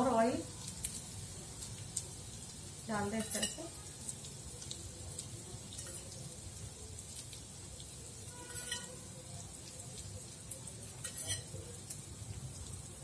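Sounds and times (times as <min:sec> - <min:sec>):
food sizzling in oil: 0:00.0 - 0:13.0
metal spoon clinking on bowl: 0:03.2 - 0:03.7, 0:08.4 - 0:09.0, 0:11.0 - 0:11.6.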